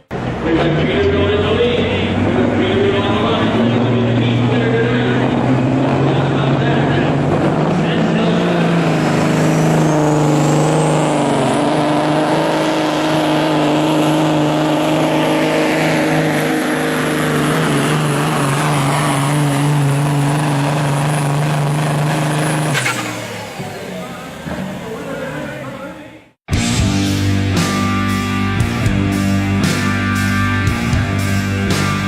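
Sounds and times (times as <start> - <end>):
diesel engine running hard: 0.0 - 32.0.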